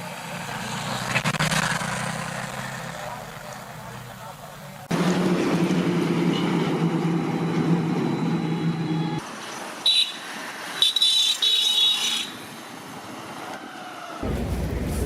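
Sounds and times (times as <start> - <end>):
street ambience: 0.0 - 15.0
vehicle engine humming: 14.2 - 15.0.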